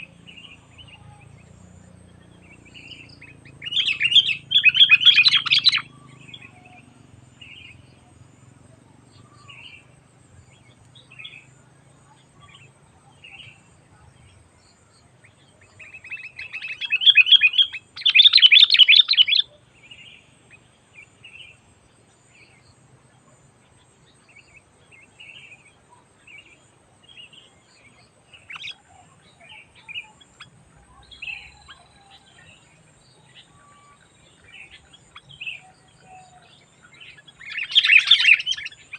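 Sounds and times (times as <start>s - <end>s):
bird chirping and chattering: 2.6s - 6.5s, 15.9s - 19.4s, 36.9s - 38.9s.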